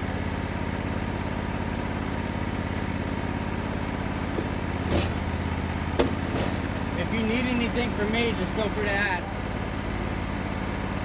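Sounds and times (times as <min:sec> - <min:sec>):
engine idling: 0:00.0 - 0:11.0
brief knock: 0:06.0 - 0:06.6.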